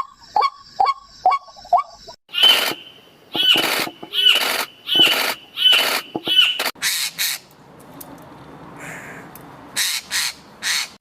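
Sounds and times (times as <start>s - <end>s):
bird harsh calls: 0.0s - 7.4s, 8.8s - 11.0s.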